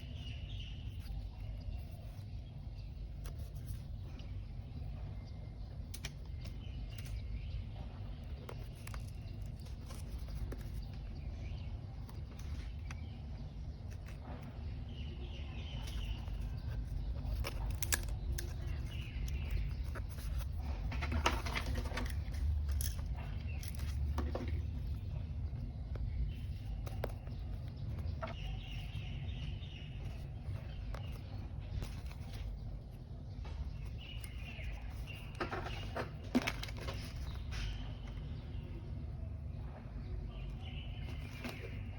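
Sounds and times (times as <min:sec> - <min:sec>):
faint bird chirps: 0:00.0 - 0:41.9
steady low hum: 0:00.0 - 0:41.9
paper rustling and clicks: 0:08.1 - 0:14.7, 0:15.3 - 0:32.8, 0:33.5 - 0:38.3, 0:41.0 - 0:41.9.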